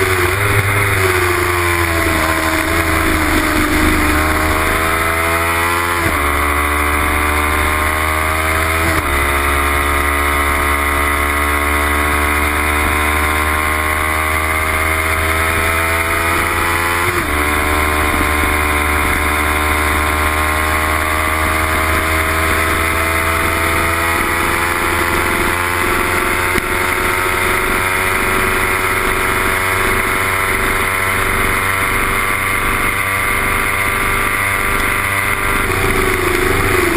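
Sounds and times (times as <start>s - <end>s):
steady rushing noise: 0.0s - 9.5s
gear changes: 0.0s - 36.9s.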